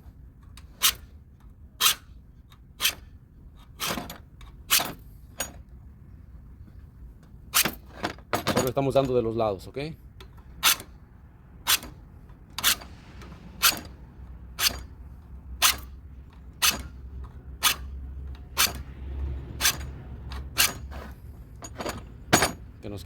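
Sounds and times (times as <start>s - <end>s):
hand file rasping on steel: 14.6s - 15.0s, 17.6s - 19.0s.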